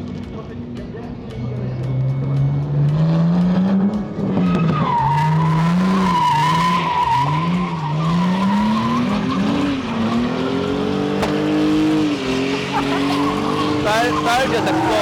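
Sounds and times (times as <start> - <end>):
tyres squealing: 4.7 - 15.0
car engine revving hard: 5.0 - 15.0.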